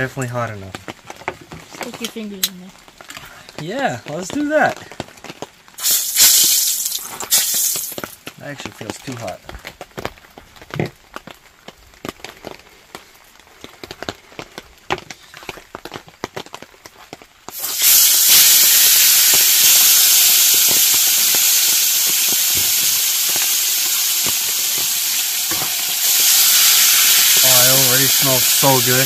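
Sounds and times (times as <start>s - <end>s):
fish sizzling in hot oil: 5.7s - 8.3s, 17.4s - 29.0s.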